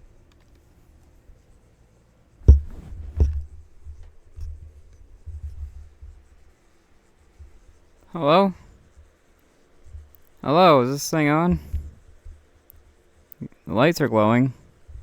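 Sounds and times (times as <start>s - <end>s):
microphone handling rumble: 2.4s - 6.2s
microphone knocks: 2.4s - 6.2s.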